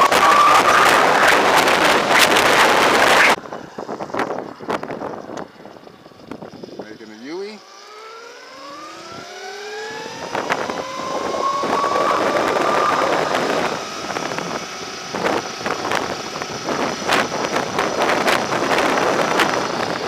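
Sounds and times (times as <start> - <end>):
wind buffeting microphone: 0.0 - 6.8, 9.0 - 20.0
electric motorbike motor whine: 0.0 - 20.0.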